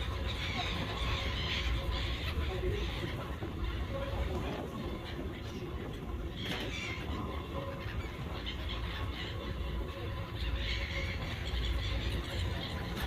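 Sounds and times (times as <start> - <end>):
seagulls calling: 0.0 - 13.0.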